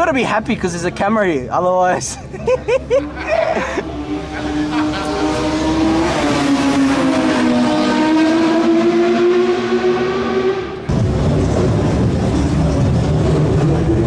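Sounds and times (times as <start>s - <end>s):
car engines running: 0.0s - 14.0s
rough race car engine: 2.9s - 14.0s.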